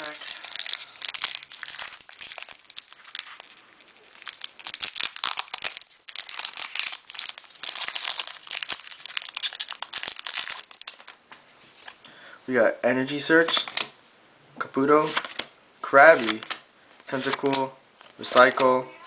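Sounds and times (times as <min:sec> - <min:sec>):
foil wrapper crinkling and tearing: 0:00.0 - 0:11.2.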